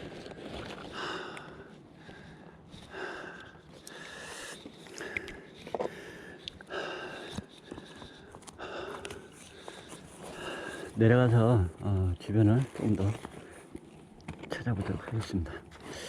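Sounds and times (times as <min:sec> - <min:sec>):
man breathing heavily: 0:00.0 - 0:11.8, 0:15.6 - 0:16.0.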